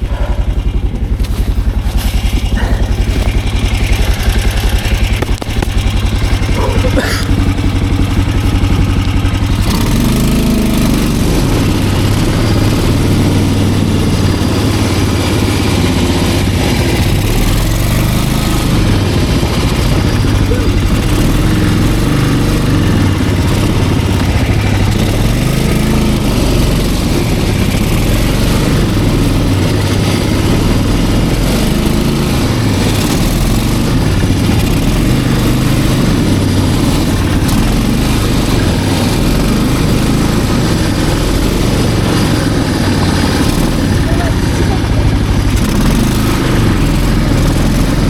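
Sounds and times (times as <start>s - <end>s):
snowmobile engine running: 0.0s - 48.0s.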